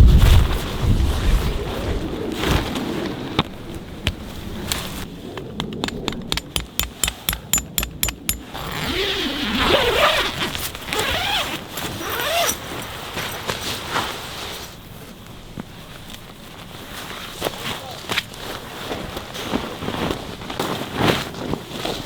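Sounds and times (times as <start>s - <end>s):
sharp clicks: 4.1s - 8.6s.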